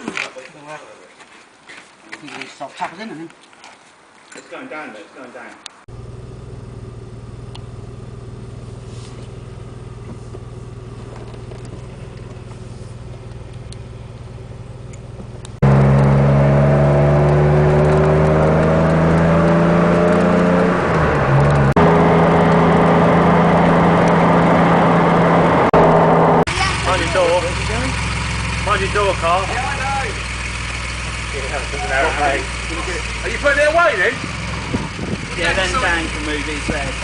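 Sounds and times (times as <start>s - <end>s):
car engine idling: 5.9s - 37.0s.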